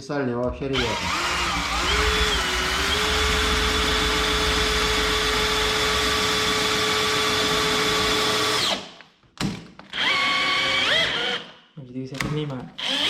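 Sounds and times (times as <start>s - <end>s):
electric drill whining: 0.7s - 8.8s, 9.9s - 11.5s, 12.8s - 13.0s.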